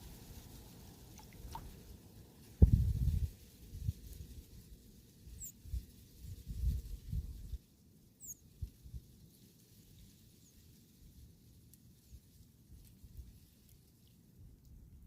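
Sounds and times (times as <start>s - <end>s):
small bird high chirps: 5.4s - 5.6s, 8.2s - 8.5s.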